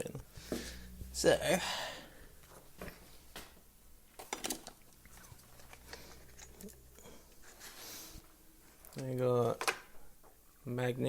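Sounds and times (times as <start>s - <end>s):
faint steady hum: 0.0s - 11.0s
small parts and tools clicking: 4.2s - 7.8s.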